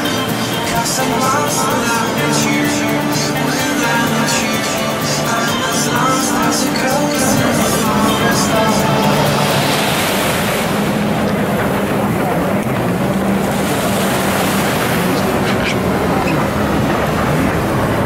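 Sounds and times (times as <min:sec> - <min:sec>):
jet ski engine running: 0:00.0 - 0:18.0
rushing water and spray: 0:00.0 - 0:18.0
wind noise: 0:06.0 - 0:18.0.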